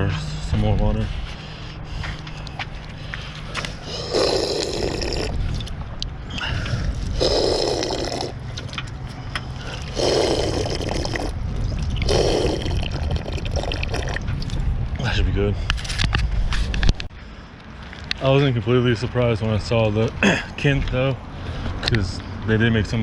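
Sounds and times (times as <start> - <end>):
drinking water from a bottle: 1.4 - 14.8
gulping: 3.5 - 8.8, 9.6 - 14.6.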